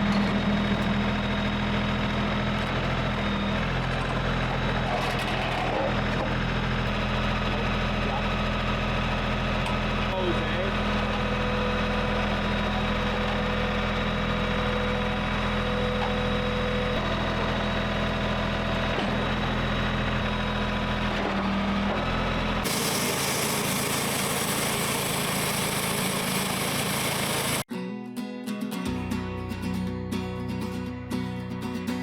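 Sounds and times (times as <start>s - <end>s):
small gas engine running: 0.0s - 27.7s.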